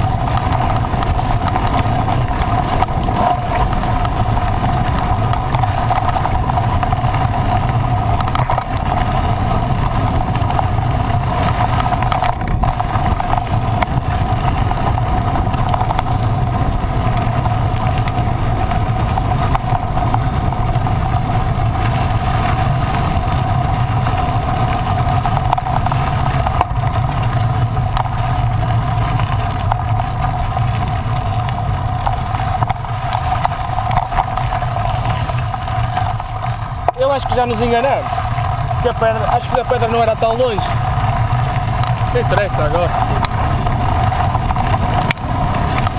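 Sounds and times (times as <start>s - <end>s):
engine running steadily: 0.0s - 45.9s.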